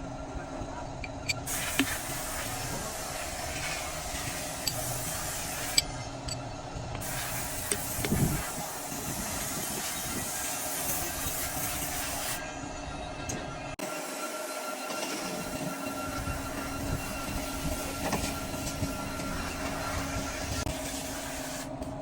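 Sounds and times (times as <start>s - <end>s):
sharp clicks and knocks: 1.0s - 2.0s.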